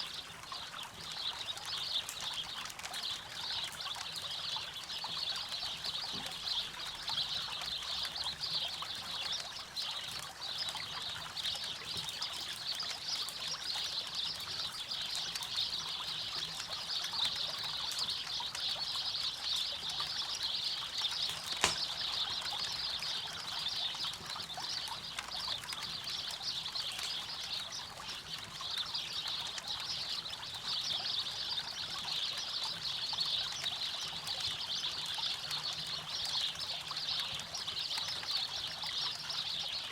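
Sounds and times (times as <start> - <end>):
campfire crackling and popping: 10.2 - 28.9.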